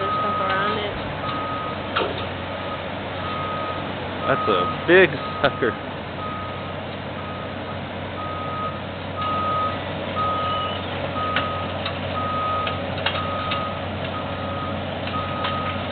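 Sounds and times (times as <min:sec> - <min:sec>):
reversing alarm beeping: 0:00.0 - 0:01.8, 0:02.6 - 0:15.9
low engine rumble: 0:00.0 - 0:15.9.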